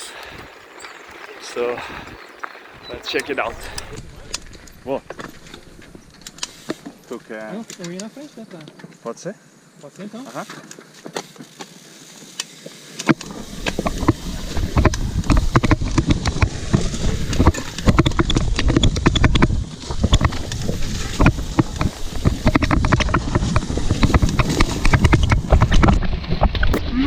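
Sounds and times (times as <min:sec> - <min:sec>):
bike clicks and rattles: 0:00.2 - 0:09.0, 0:09.9 - 0:26.8
wind buffeting microphone: 0:01.8 - 0:07.0, 0:13.2 - 0:27.0.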